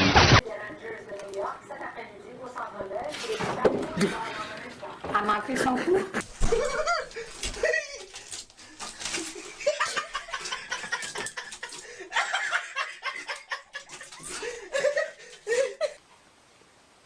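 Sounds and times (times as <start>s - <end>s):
person laughing in choppy bursts: 5.8s - 8.2s, 9.3s - 16.0s.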